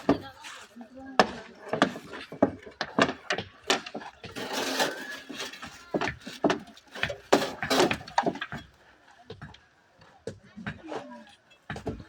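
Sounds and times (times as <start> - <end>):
wooden boards knocking: 1.2 - 8.7
short scraping rush: 4.3 - 5.8.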